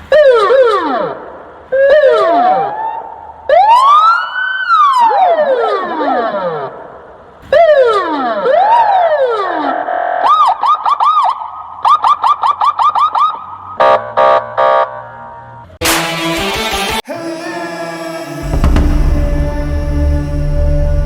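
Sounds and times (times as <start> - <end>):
emergency vehicle siren: 3.5 - 6.0.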